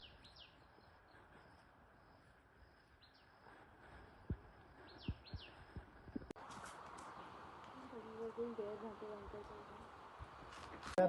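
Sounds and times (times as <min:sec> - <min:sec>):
faint bird chirps: 0:00.0 - 0:06.3
soft low thumps: 0:04.0 - 0:06.4.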